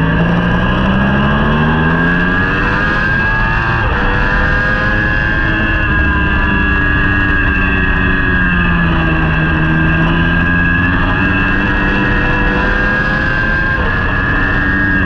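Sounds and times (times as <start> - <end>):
superbike engine at high revs: 0.0 - 15.0.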